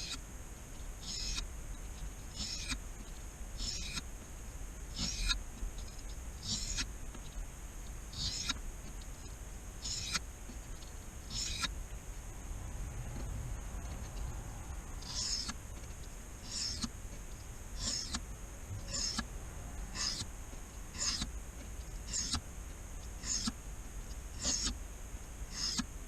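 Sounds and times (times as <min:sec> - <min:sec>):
knife scraping on whetstone: 0:16.4 - 0:16.9, 0:17.8 - 0:18.2, 0:18.8 - 0:19.2, 0:20.9 - 0:21.2, 0:22.1 - 0:22.4, 0:23.2 - 0:23.6, 0:24.4 - 0:24.7.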